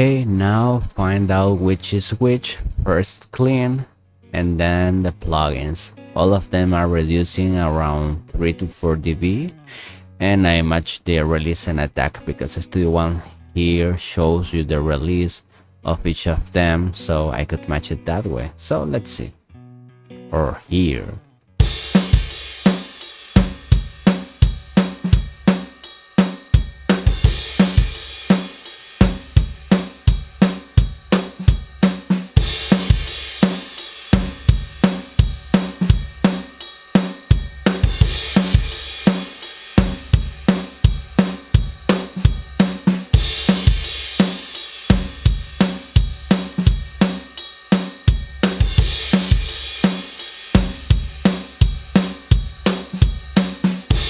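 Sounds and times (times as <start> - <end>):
acoustic drum kit groove: 21.6 - 54.0
bright cymbal wash: 21.6 - 54.0.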